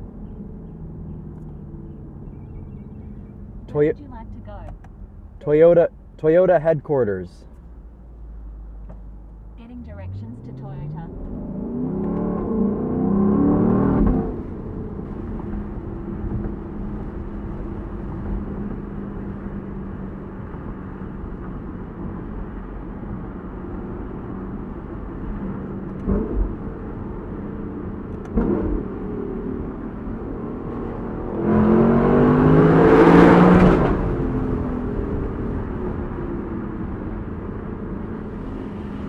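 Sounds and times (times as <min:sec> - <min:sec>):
wind and road noise: 0:00.0 - 0:39.0
car engine revving: 0:09.6 - 0:19.4, 0:25.9 - 0:39.0.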